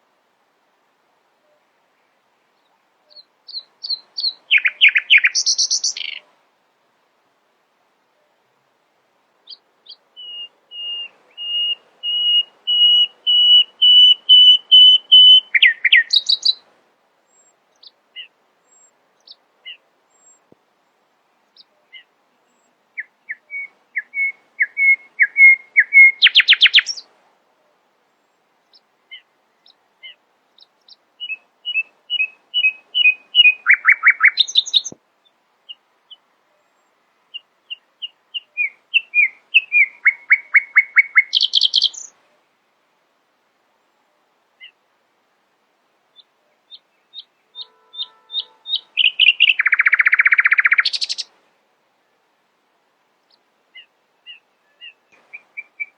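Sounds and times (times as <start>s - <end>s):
nightingale singing: 1.4s - 6.3s, 9.4s - 16.7s, 17.3s - 20.5s, 21.4s - 27.1s, 28.6s - 42.3s, 44.6s - 44.8s, 46.1s - 51.4s, 53.2s - 55.9s.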